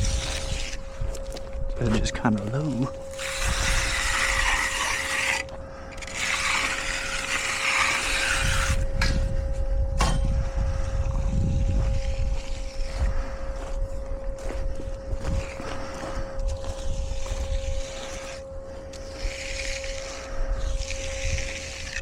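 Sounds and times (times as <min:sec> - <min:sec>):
trowel scraping wet concrete: 0:00.0 - 0:01.2, 0:01.8 - 0:09.3, 0:15.2 - 0:22.0
faint steady hum: 0:00.0 - 0:22.0.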